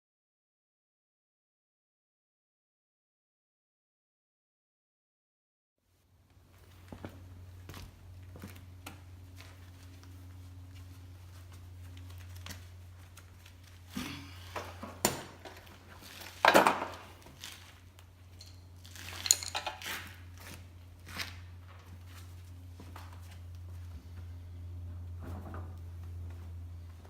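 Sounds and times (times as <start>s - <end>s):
steady low hum: 5.9s - 27.0s
metal tools clinking: 18.3s - 20.1s.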